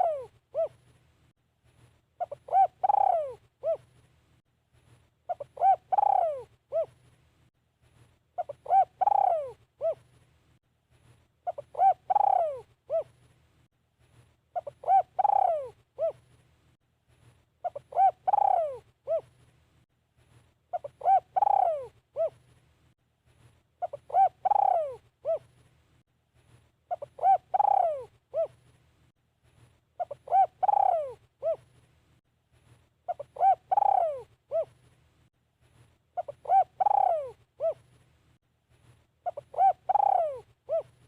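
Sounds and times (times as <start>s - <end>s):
dove cooing: 0.0s - 0.8s, 2.2s - 3.9s, 5.3s - 7.0s, 8.4s - 10.1s, 11.4s - 13.2s, 14.6s - 16.3s, 17.6s - 19.4s, 20.7s - 22.4s, 23.8s - 25.5s, 26.9s - 28.6s, 30.0s - 31.7s, 33.1s - 34.8s, 36.2s - 37.9s, 39.2s - 41.0s.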